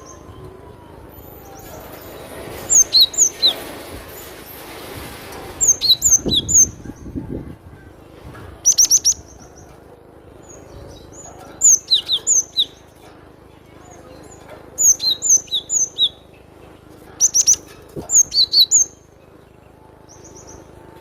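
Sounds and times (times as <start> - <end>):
bird singing high notes: 0.0 - 3.7.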